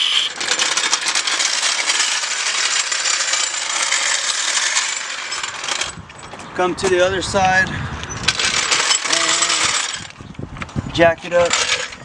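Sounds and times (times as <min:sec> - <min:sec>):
metal floor jack clicking: 0:00.3 - 0:06.0, 0:08.3 - 0:10.2, 0:11.4 - 0:12.0.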